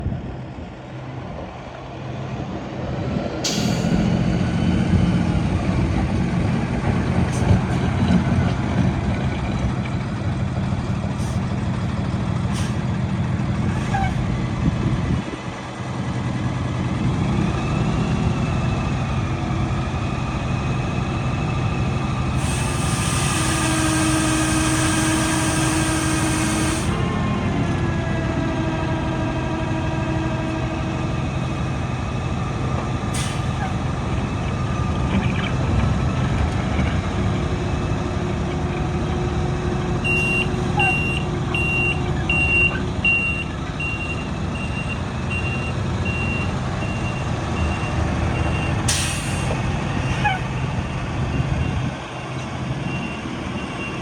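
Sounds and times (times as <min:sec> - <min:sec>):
diesel truck engine running: 0:00.0 - 0:54.0
loud air hiss: 0:22.4 - 0:27.0.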